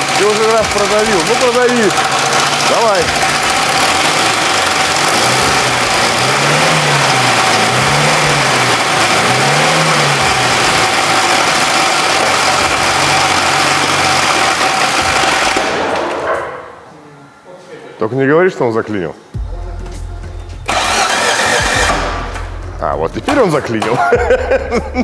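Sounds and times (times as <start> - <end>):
loud high metallic grinding: 0.0 - 15.6, 20.6 - 22.4
car engine revving: 0.0 - 15.8, 19.9 - 23.3.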